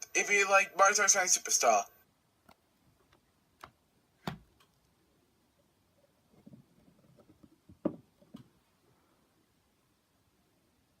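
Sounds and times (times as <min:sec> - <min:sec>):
faint clicks and taps: 0:06.3 - 0:08.6.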